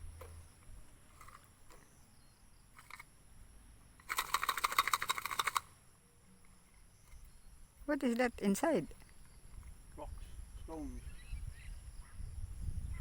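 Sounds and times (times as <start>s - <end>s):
faint outdoor background: 0.0s - 13.0s
rapid clicks or rattling: 4.0s - 5.7s.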